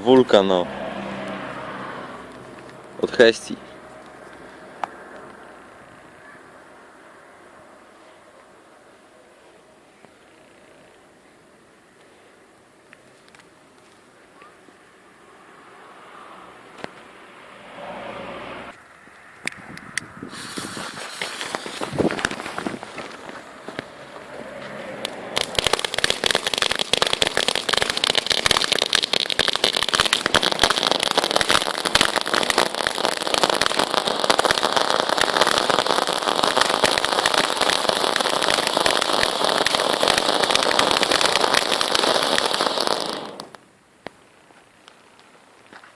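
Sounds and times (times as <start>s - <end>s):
firework fountain crackling: 0.0s - 0.6s, 1.3s - 6.2s, 20.3s - 24.4s, 25.0s - 45.8s.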